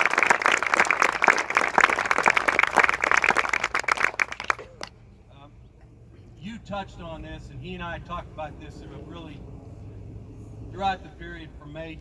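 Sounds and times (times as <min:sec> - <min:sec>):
crowd applauding: 0:00.0 - 0:04.9.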